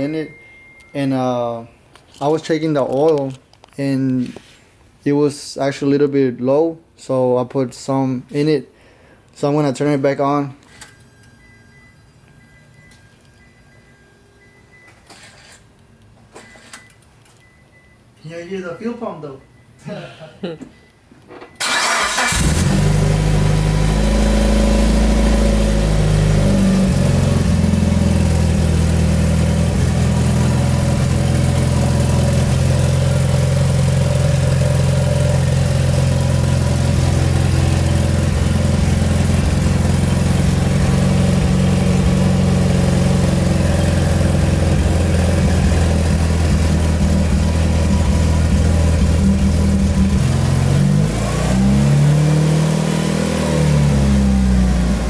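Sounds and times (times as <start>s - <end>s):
car engine idling: 21.6s - 51.2s.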